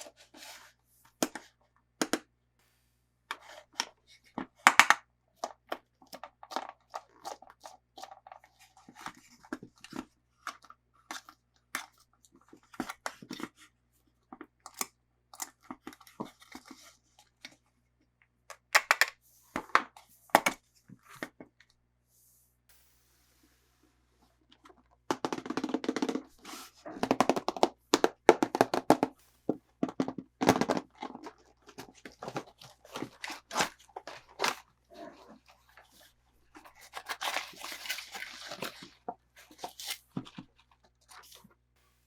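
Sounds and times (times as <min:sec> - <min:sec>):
plastic packaging crinkling: 0:24.6 - 0:41.5.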